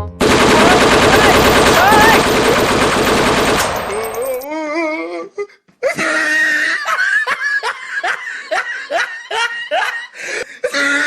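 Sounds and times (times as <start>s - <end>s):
person laughing hard: 5.8s - 11.0s.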